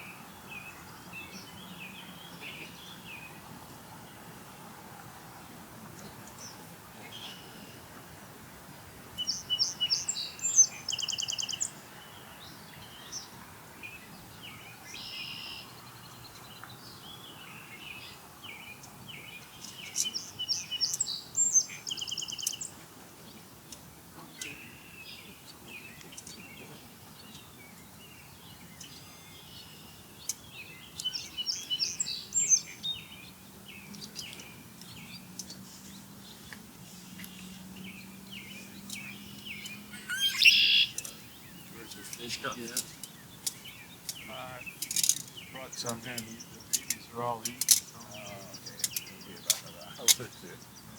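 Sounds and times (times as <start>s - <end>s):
ospreys whistled chirps: 39.6s - 41.2s.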